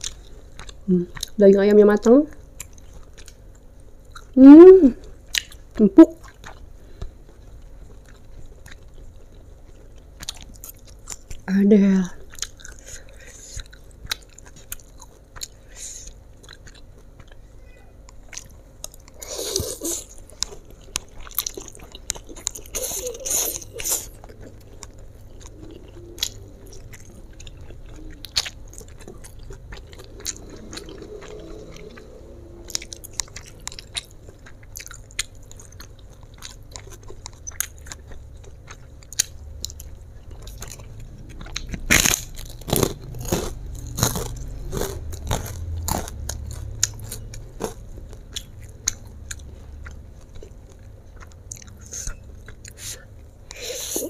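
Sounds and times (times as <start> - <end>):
person chewing noodles: 0.0 - 1.4, 2.3 - 4.4, 5.0 - 11.5, 12.2 - 17.5, 18.1 - 54.0
crunchy bites: 32.7 - 50.5.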